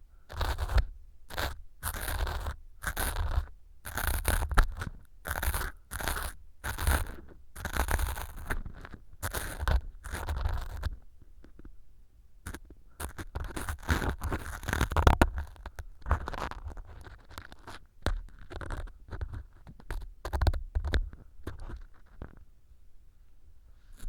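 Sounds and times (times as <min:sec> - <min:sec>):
scratching and crunching foam: 0:00.3 - 0:10.8, 0:13.0 - 0:19.6.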